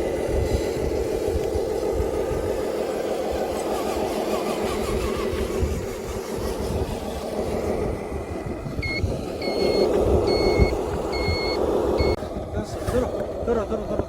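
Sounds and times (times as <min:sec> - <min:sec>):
engine sound low rumble: 0:00.0 - 0:14.0
reversing beeper: 0:08.8 - 0:12.2.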